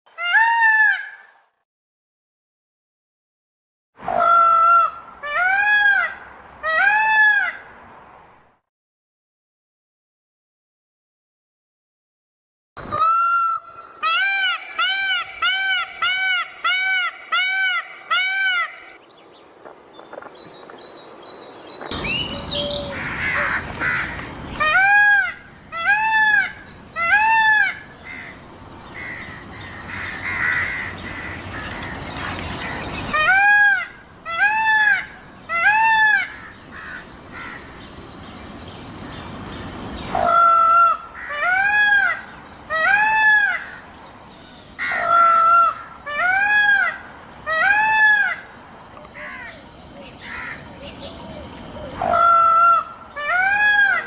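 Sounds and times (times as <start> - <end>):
peacock calling: 0.1 - 1.4, 4.0 - 7.7, 12.8 - 19.0, 21.9 - 54.0
steady high hiss: 21.9 - 54.0.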